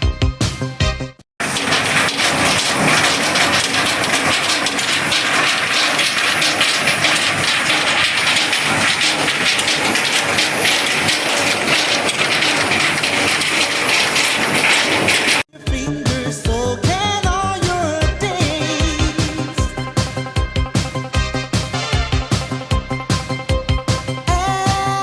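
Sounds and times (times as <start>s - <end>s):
rushing noise with crackles: 1.4s - 15.5s.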